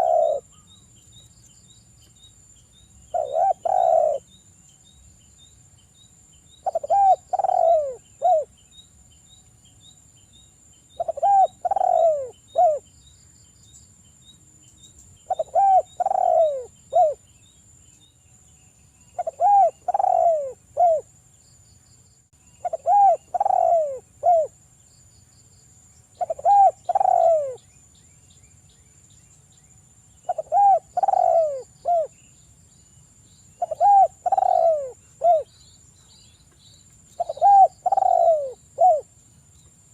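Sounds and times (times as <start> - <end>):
dove cooing: 0.0 - 0.6, 3.1 - 4.3, 6.6 - 8.5, 11.0 - 12.8, 15.3 - 17.2, 19.2 - 21.1, 22.6 - 24.6, 26.2 - 27.6, 30.2 - 32.2, 33.6 - 35.5, 37.2 - 39.1
high insect tones: 0.0 - 39.9.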